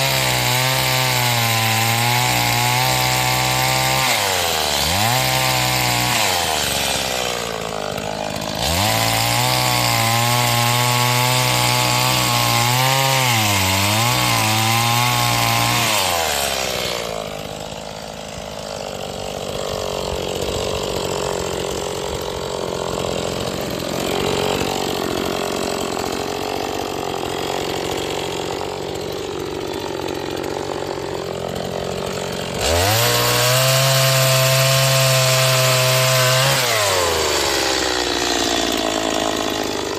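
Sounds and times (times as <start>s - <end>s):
chainsaw cutting firewood: 0.0s - 39.9s.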